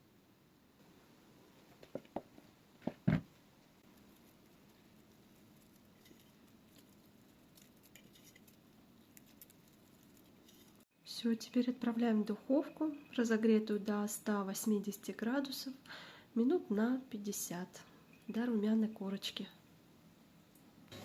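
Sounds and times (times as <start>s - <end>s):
faint ticks and scrapes: 3.8s - 10.9s.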